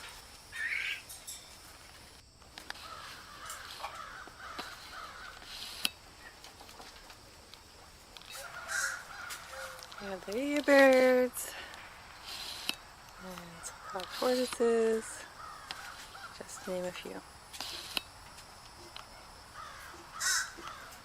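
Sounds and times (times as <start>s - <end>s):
birds squawking: 0.5s - 1.1s, 2.7s - 5.8s, 8.3s - 10.9s, 12.2s - 16.9s, 19.6s - 21.0s.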